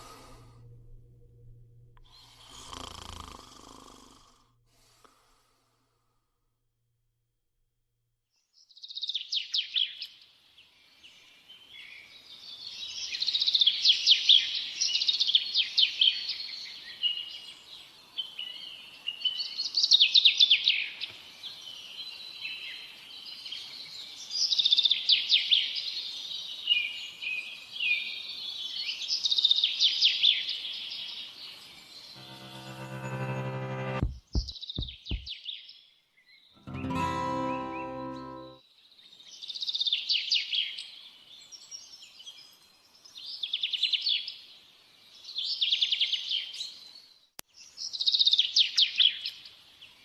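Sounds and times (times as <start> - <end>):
small birds chirping and trilling: 8.5 - 32.2, 34.4 - 50.0.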